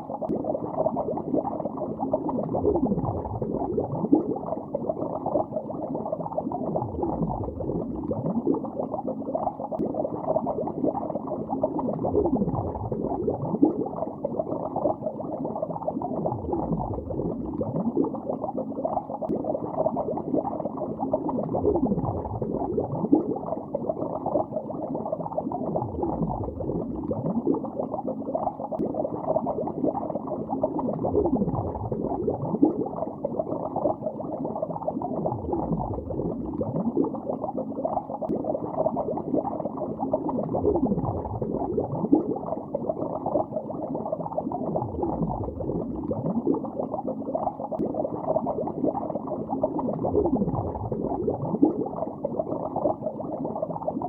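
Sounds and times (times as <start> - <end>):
deep downward-sliding gurgle: 0.0 - 54.0
underwater bubbling and gurgling: 0.0 - 54.0.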